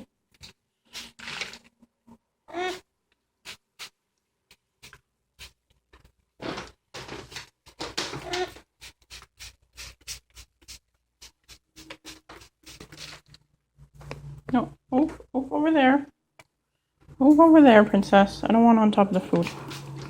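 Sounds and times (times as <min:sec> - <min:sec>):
spray bottle spritzing: 0:03.4 - 0:04.0, 0:08.3 - 0:13.3.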